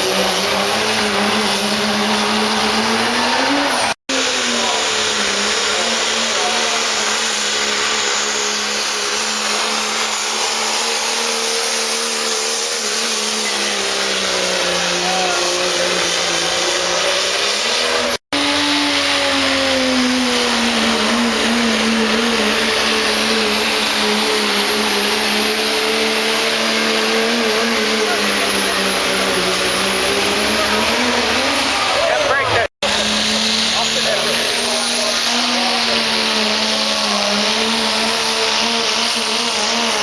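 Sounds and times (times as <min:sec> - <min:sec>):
diesel truck engine under load: 0:00.0 - 0:40.0.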